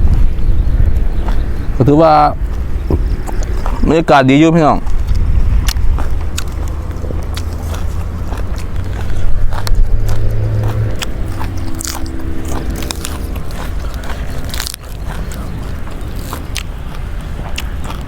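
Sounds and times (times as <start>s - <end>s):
person chewing crunchy food: 0.0s - 18.0s
steady low hum: 0.0s - 18.0s
droning tone: 5.0s - 16.2s.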